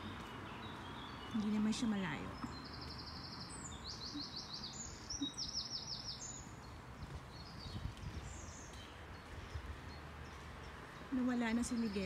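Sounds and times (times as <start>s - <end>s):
songbird singing: 0.0s - 12.0s
faint bird chirps: 2.4s - 6.6s.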